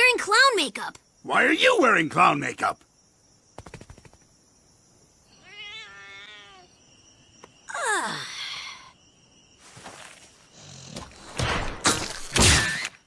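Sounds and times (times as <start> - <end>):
wavering meow-like cry: 5.3 - 6.8.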